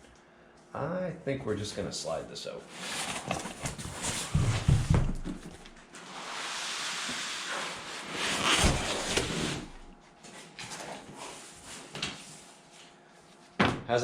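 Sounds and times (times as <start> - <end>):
cardboard scraping rustle: 2.7 - 12.4.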